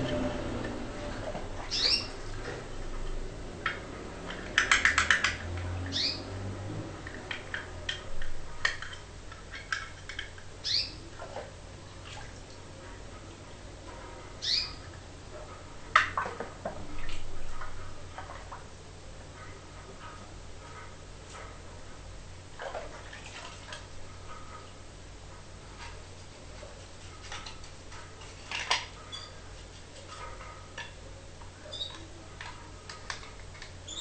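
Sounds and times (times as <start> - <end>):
cage birds chirping: 1.6 - 2.4, 4.4 - 7.9, 10.5 - 11.2, 14.1 - 14.9, 29.0 - 29.5, 31.0 - 32.3.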